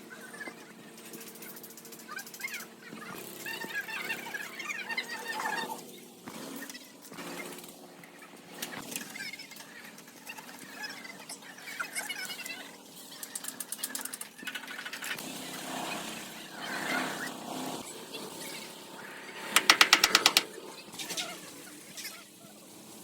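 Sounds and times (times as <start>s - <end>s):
power tool rattling: 19.1s - 20.6s.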